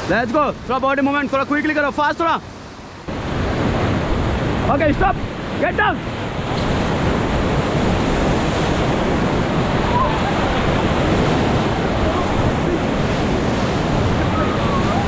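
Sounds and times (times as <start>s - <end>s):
whitewater rushing: 0.0s - 15.0s
wind buffeting microphone: 3.1s - 15.0s.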